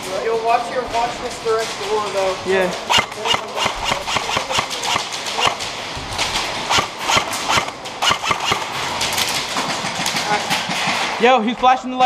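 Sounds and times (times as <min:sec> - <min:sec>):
airsoft guns firing: 0:02.8 - 0:11.2.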